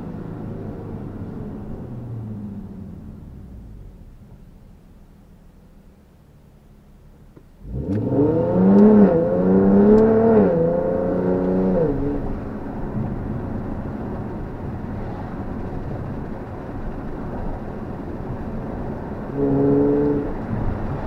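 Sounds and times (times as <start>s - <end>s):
car engine accelerating: 0.0s - 5.9s, 7.0s - 21.0s
tyre and road noise: 7.1s - 21.0s.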